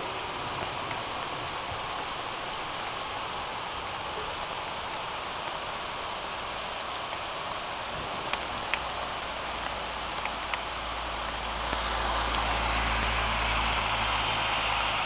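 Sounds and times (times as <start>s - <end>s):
rain hissing: 0.0s - 15.0s
faint ticks: 9.6s - 10.8s.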